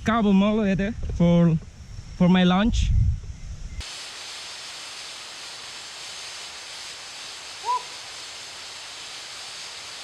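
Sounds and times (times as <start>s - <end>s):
rainforest ambience hiss: 0.0s - 10.0s
rising and falling animal call: 7.5s - 8.2s.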